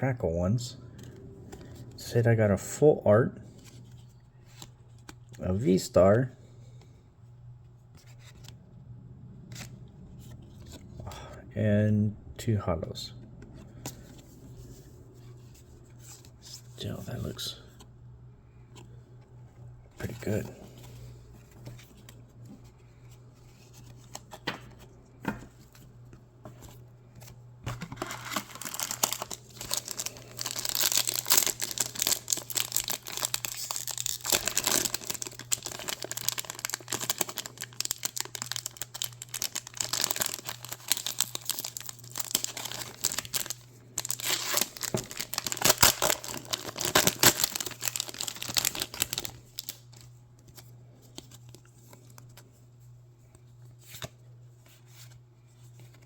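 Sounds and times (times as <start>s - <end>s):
foil wrapper crinkling and tearing: 27.8s - 50.0s.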